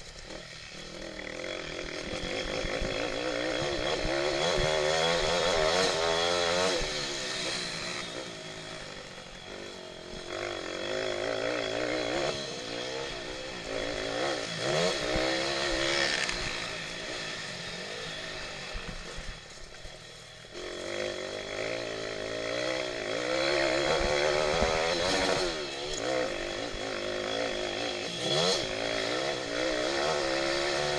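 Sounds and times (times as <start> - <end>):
motorbike engine revving hard: 0.2 - 19.7, 20.4 - 30.9.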